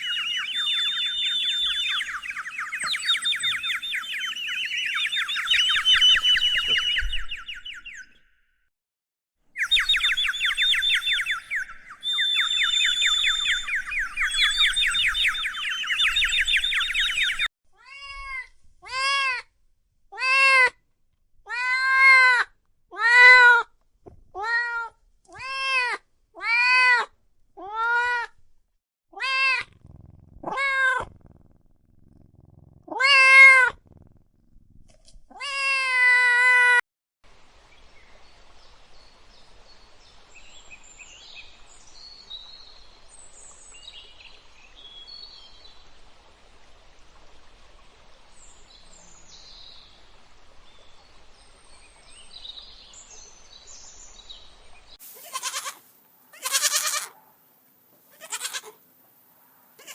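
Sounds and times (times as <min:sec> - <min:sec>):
cat meowing: 0:29.2 - 0:29.8, 0:30.4 - 0:31.1, 0:32.9 - 0:33.8, 0:55.2 - 0:57.2, 0:58.1 - 0:58.7.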